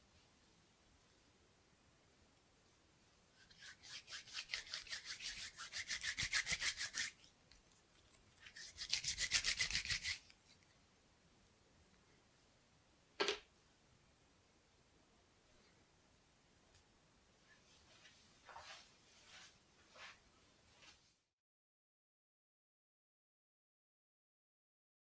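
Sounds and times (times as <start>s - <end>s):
rubber bands being rubbed: 3.4s - 7.2s, 8.4s - 10.2s.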